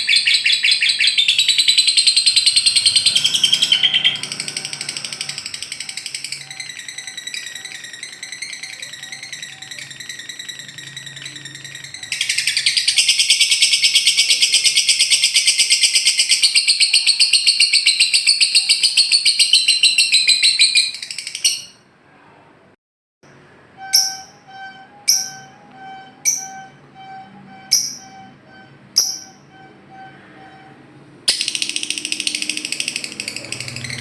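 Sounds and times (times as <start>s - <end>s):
high bird calling: 0.0s - 21.8s, 23.8s - 34.0s
lovebird chattering trill: 0.0s - 21.8s, 31.3s - 34.0s
sharp bird chirps: 0.0s - 21.8s, 23.8s - 30.6s, 31.3s - 34.0s
steady tone: 1.5s - 13.4s, 23.3s - 34.0s.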